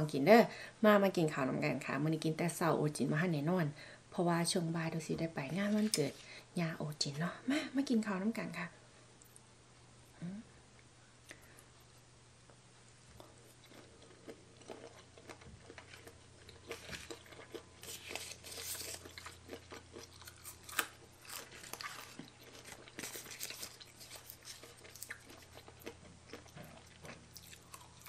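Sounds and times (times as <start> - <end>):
crisp crunching and wet chewing: 13.1 - 28.0.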